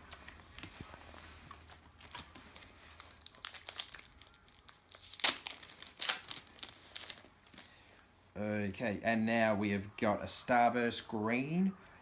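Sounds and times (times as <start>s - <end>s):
plastic wrapper crinkling: 0.0s - 7.9s.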